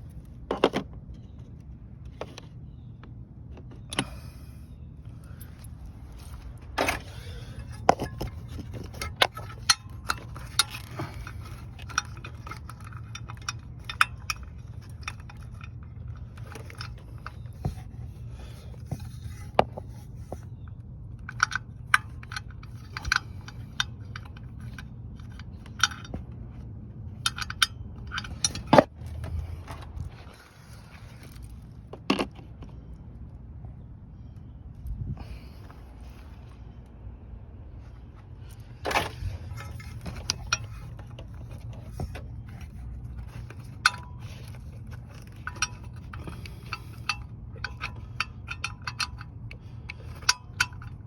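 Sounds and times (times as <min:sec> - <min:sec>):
steady low hum: 0:00.0 - 0:51.0
metal tools clinking on metal: 0:06.8 - 0:17.9, 0:27.2 - 0:28.9, 0:38.9 - 0:51.0.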